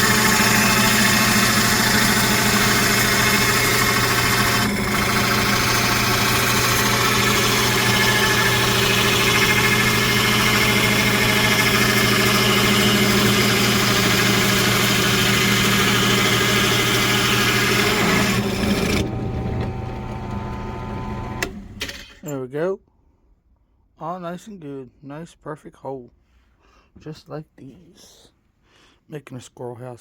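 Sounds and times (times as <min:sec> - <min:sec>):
drill bit cutting wood: 0:00.0 - 0:21.6
drill press motor hum: 0:00.0 - 0:22.2.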